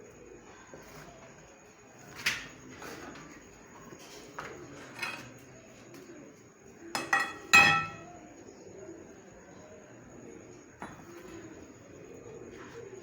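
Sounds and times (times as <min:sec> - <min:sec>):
metal clanking on metal: 0:07.0 - 0:08.2.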